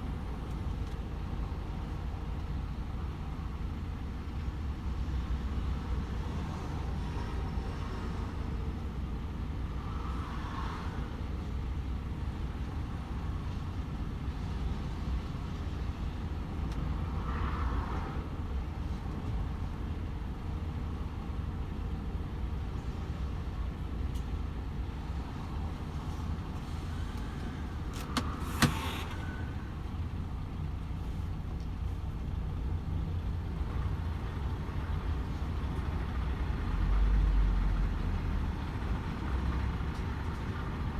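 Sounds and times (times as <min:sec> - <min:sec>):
tyre and road noise: 0:00.0 - 0:40.9
truck diesel engine rumbling: 0:19.8 - 0:40.9.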